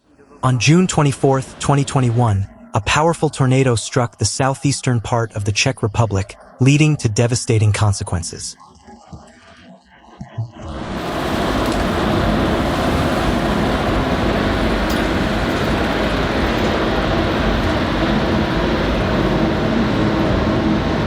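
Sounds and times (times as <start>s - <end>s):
wind rumble on microphone: 10.3s - 21.0s
loud rushing wind: 10.7s - 21.0s.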